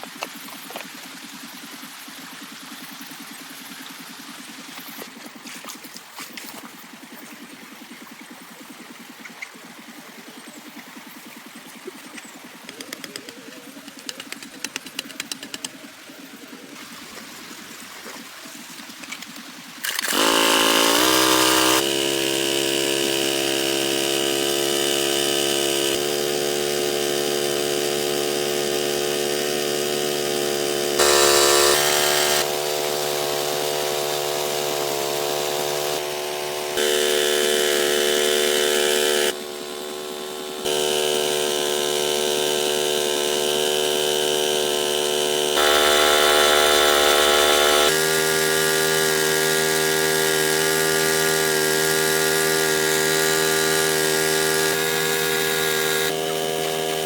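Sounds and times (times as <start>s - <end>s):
small motor running at high speed: 18.9s - 57.0s.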